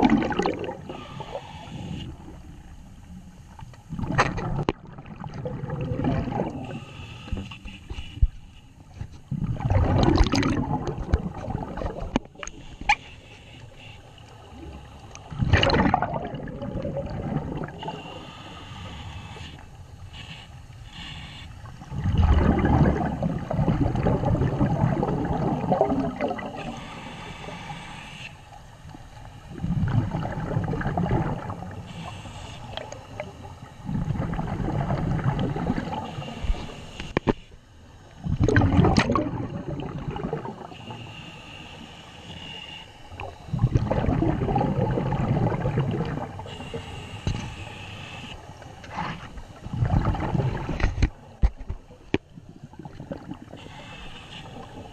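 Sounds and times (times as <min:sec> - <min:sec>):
underwater regulator bubbling: 0:00.0 - 0:02.3, 0:03.9 - 0:07.7, 0:09.3 - 0:13.0, 0:14.6 - 0:18.2, 0:21.9 - 0:26.8, 0:29.5 - 0:37.3, 0:38.2 - 0:40.9, 0:43.1 - 0:47.6, 0:48.8 - 0:53.9.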